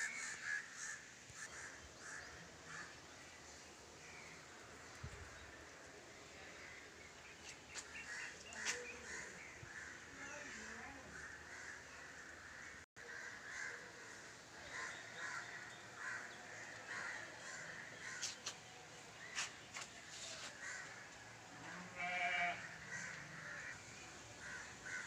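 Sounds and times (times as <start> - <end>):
crows cawing: 0.0 - 3.0, 8.1 - 18.4, 20.6 - 21.1, 22.0 - 23.8, 24.4 - 25.0
goat or sheep bleat: 21.6 - 22.8.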